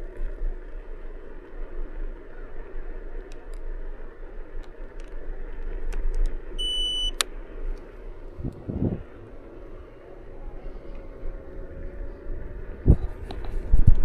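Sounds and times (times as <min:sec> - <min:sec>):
electric vehicle motor and tyres hum: 0:00.0 - 0:14.0.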